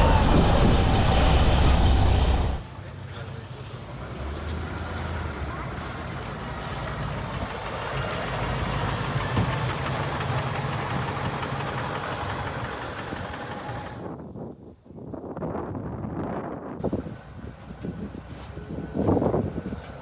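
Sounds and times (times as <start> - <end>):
bus engine idling: 0.0 - 14.1.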